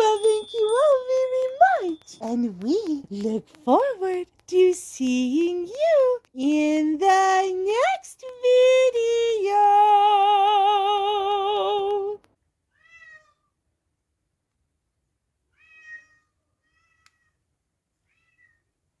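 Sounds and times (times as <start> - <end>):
cat meowing: 12.8 - 13.4, 15.5 - 17.3.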